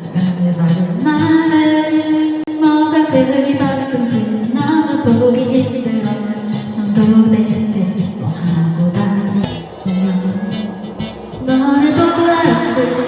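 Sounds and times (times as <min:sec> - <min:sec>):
musical accompaniment: 0:09.4 - 0:13.0
woman singing long notes: 0:11.5 - 0:13.0.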